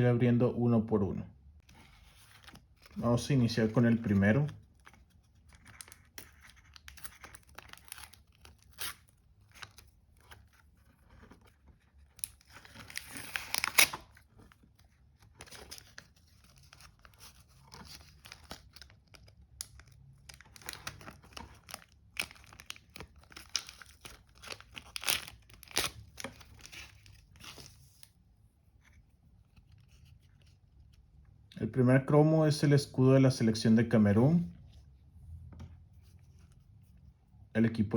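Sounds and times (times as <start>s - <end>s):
wrapper crinkling: 12.1s - 14.5s, 15.4s - 28.0s
packet tearing: 12.2s - 14.1s, 18.0s - 27.7s.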